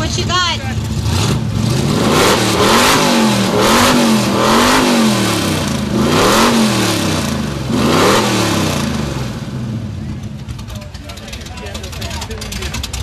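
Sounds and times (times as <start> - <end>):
car engine revving loudly: 0.8 - 10.0.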